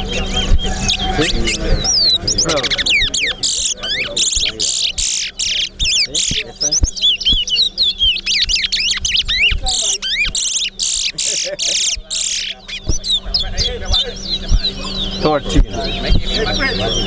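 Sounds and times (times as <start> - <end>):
finches singing: 0.0 - 17.0.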